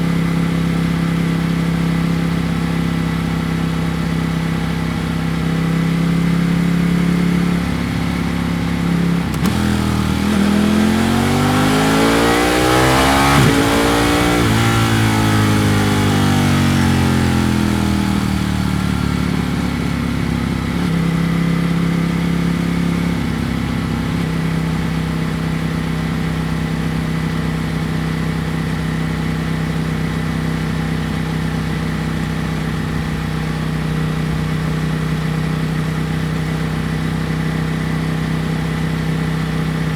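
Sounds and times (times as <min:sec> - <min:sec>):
motorcycle engine revving: 0:04.6 - 0:27.4.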